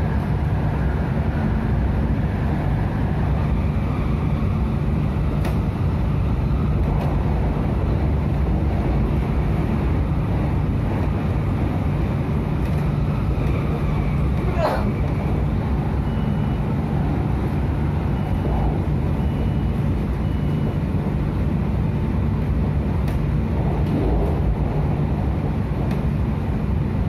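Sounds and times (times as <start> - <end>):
train rumble inside carriage: 0.0 - 27.0.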